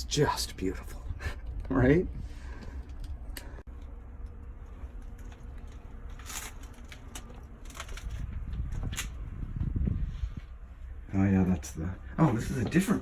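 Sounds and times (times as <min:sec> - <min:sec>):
low rumble: 0:00.0 - 0:12.2
footsteps in a train car: 0:03.7 - 0:13.0.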